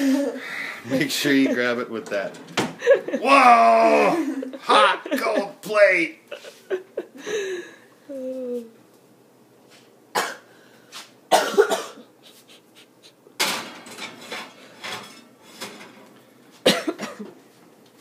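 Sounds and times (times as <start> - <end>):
person coughing: 10.2 - 10.5, 11.3 - 12.1, 16.6 - 17.3.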